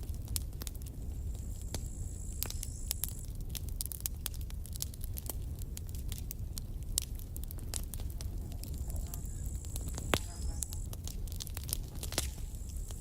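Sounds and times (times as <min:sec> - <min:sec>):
campfire wood crackling: 0:00.0 - 0:13.0
faint high whistle: 0:01.8 - 0:03.1.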